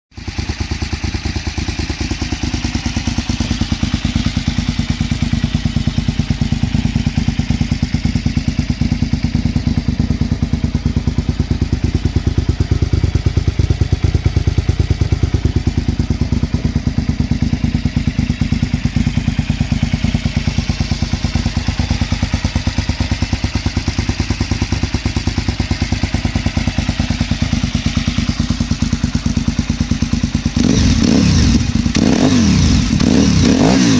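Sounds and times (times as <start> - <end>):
motorcycle engine idling: 0.1 - 33.9.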